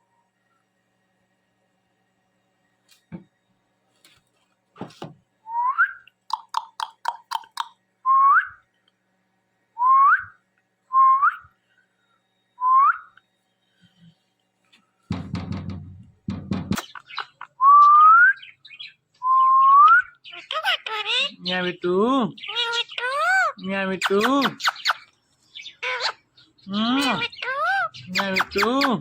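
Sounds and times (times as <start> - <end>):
parrot clicks: 6.3 - 7.8.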